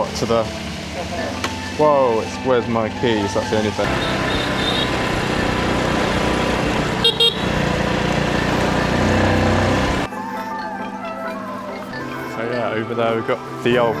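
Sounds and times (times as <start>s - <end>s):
vehicle engine and road noise: 0.0s - 10.1s
short horn toot: 7.0s - 7.6s.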